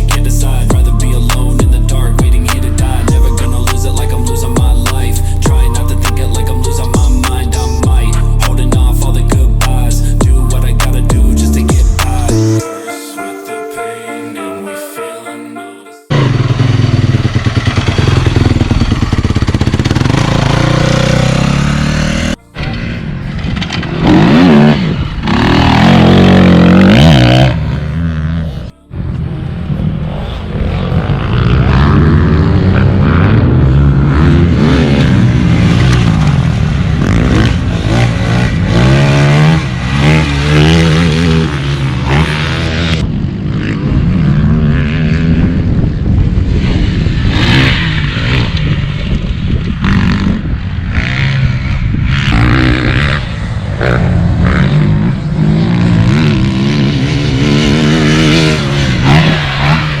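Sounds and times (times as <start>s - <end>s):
dirt bike engine revving: 0.0s - 12.6s, 16.1s - 60.0s.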